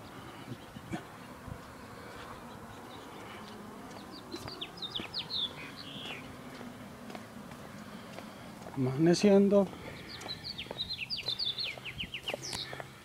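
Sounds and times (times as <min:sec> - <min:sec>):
songbird chirping: 0:00.0 - 0:13.0
footsteps on concrete: 0:01.0 - 0:13.0.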